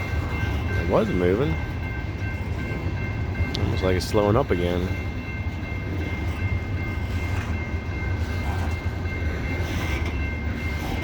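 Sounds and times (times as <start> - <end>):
coal train rumbling past: 0.0 - 11.0.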